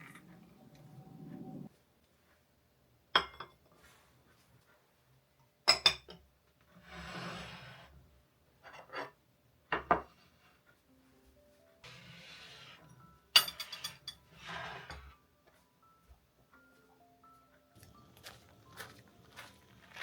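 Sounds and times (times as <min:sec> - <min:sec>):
dishes and cutlery clinking: 0:03.2 - 0:03.8, 0:11.8 - 0:15.2.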